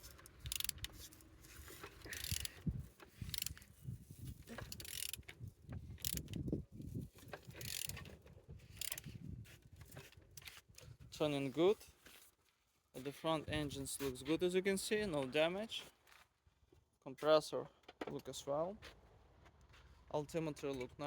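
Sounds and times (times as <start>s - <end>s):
engine turned over by hand: 0.0s - 3.8s.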